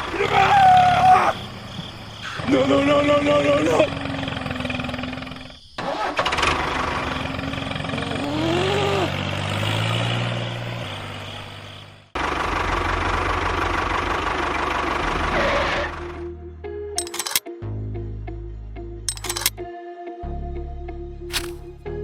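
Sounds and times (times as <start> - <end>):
churning machine engine: 0.0 - 16.0, 17.0 - 17.4, 19.1 - 19.5.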